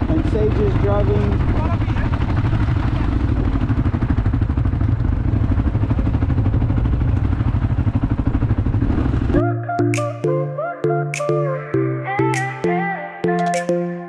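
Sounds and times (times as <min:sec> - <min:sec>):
quad bike engine running: 0:00.0 - 0:09.4.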